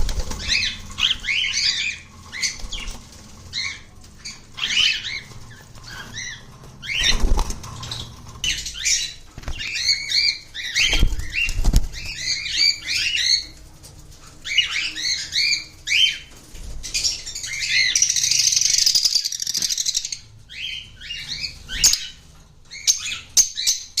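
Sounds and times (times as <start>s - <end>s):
wing flapping: 0.0s - 10.0s, 10.6s - 15.2s
cockatiels chirping: 0.2s - 13.6s, 14.4s - 24.0s.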